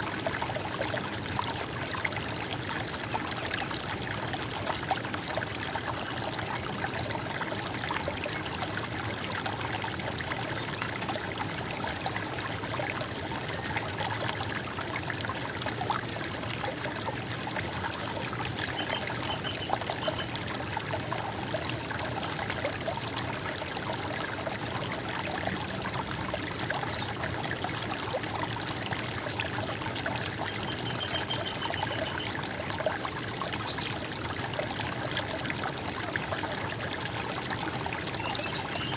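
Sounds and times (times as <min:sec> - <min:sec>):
water trickling and splashing: 0:00.0 - 0:38.9
faint bird chirps: 0:30.6 - 0:32.3.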